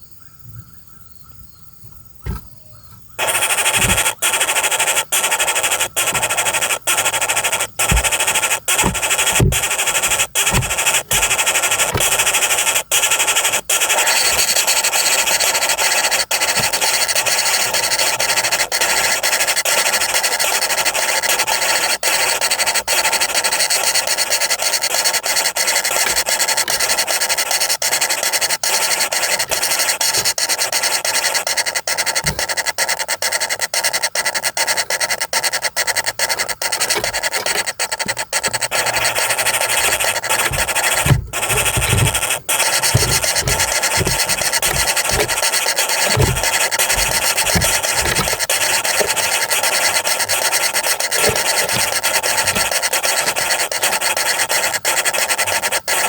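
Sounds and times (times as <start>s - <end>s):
faint insects: 0.0s - 56.0s
soft knocks: 2.2s - 2.6s, 3.2s - 4.2s, 6.0s - 13.4s, 36.8s - 50.5s
nestlings begging harsh rasping: 2.2s - 56.0s.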